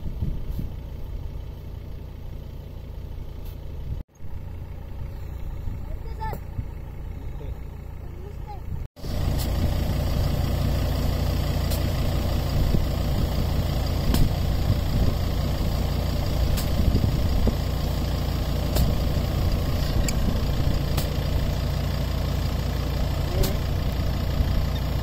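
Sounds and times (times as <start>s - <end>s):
car engine idling: 0.0s - 25.0s
shovel digging sand: 16.4s - 16.9s, 20.9s - 21.2s.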